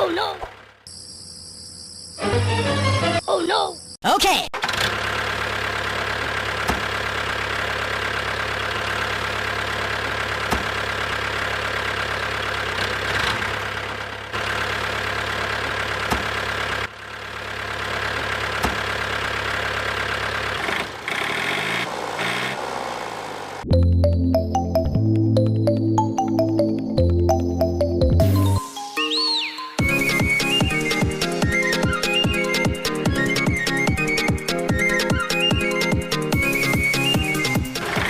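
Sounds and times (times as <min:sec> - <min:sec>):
engine-like drone: 0:04.6 - 0:23.7.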